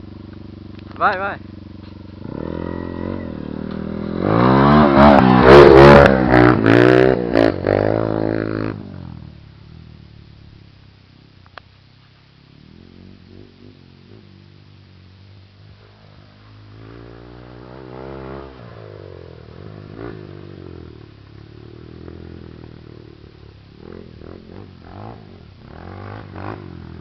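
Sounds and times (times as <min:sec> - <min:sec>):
dirt bike engine revving: 0:01.1 - 0:09.2, 0:15.7 - 0:27.0.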